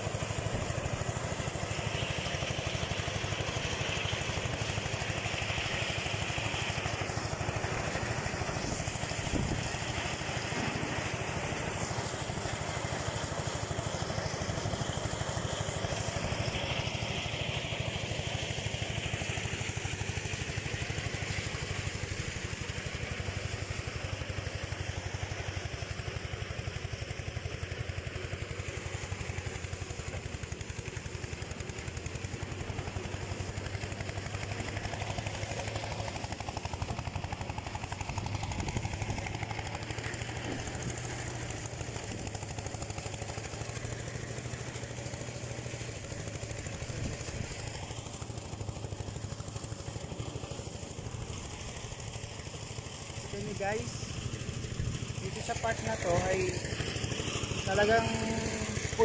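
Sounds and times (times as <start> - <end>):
rice thresher engine running: 0.0 - 59.0.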